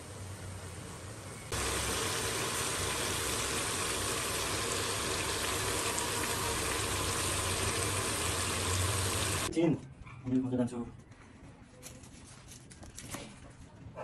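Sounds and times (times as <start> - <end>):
chicken sizzling in a pan: 0.0 - 9.5.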